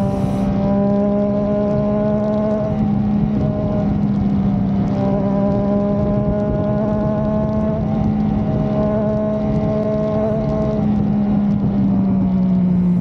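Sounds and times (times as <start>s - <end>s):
motorcycle engine running steadily: 0.0s - 13.0s.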